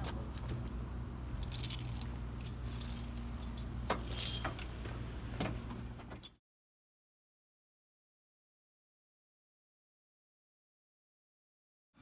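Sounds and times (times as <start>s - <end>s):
low engine hum: 0.0s - 6.3s
metallic clinks and jingles: 0.2s - 4.8s.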